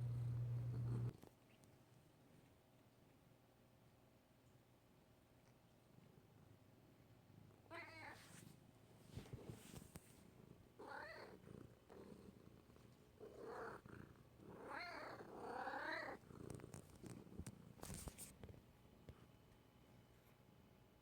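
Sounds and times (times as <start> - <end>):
cat purring: 0.0 - 1.3, 9.1 - 18.6.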